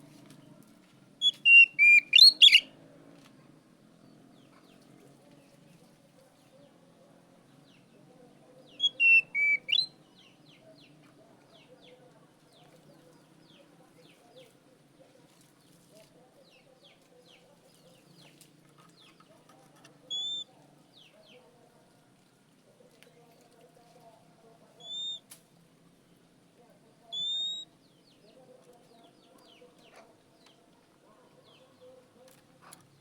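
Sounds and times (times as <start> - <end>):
bird whistling: 1.2 - 2.7, 8.8 - 9.9, 20.1 - 20.4, 24.8 - 25.2, 27.1 - 27.7
faint short chirps: 1.2 - 2.7, 8.8 - 9.9, 27.2 - 27.7.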